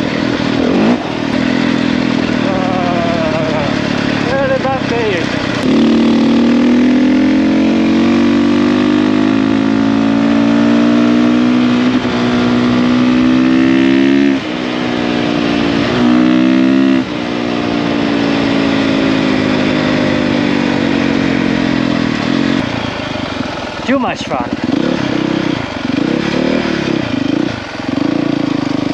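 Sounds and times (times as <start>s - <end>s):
dirt bike engine running: 0.0s - 28.9s.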